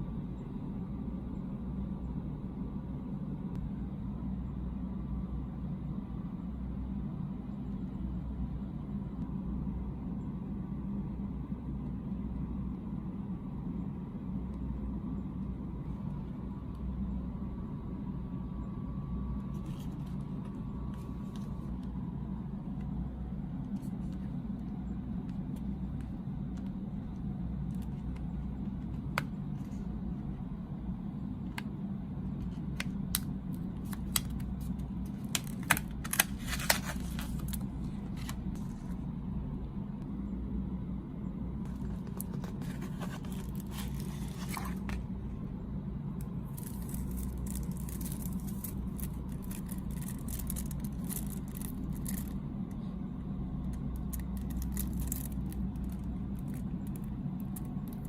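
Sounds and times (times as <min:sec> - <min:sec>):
steady low hum: 0:00.0 - 0:58.0
wrapper rustling and crinkling: 0:33.8 - 0:38.8, 0:41.7 - 0:45.0, 0:46.5 - 0:52.4, 0:54.1 - 0:56.6.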